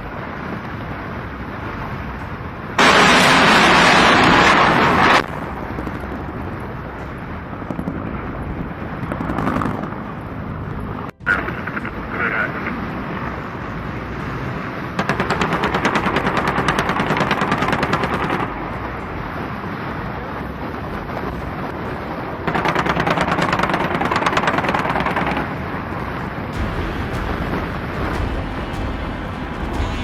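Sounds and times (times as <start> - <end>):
steady noise bed: 0.0 - 30.0
helicopter gun automatic fire: 15.0 - 18.5.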